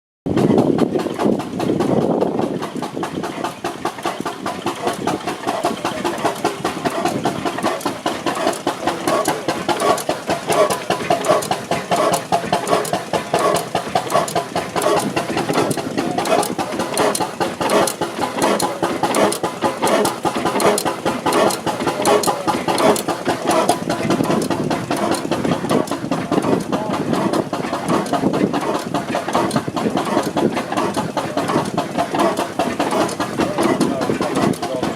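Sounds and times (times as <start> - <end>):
stationary engine running rhythmically: 0.2 - 34.9.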